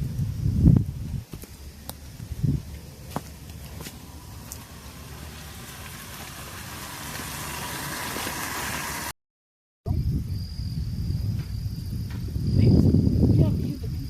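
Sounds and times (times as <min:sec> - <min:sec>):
insects buzzing: 0:00.0 - 0:09.1
hot pan sizzling: 0:03.9 - 0:09.1.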